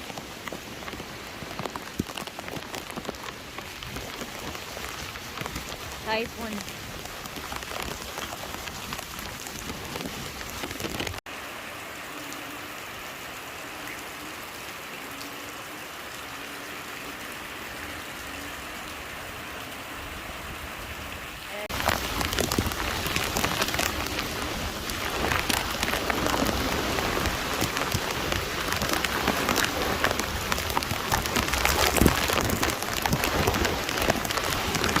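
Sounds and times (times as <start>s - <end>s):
heavy rain pouring and splashing: 0.0s - 35.0s.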